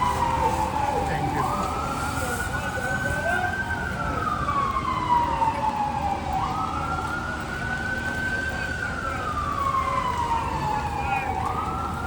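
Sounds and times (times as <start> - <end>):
emergency siren wailing: 0.0 - 12.0
street noise: 0.0 - 12.0.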